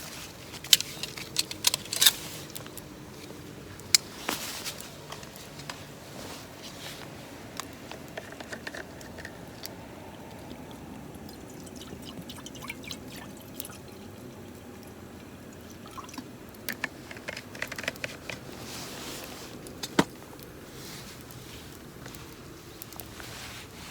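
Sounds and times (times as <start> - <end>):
water being poured: 7.7 - 16.8.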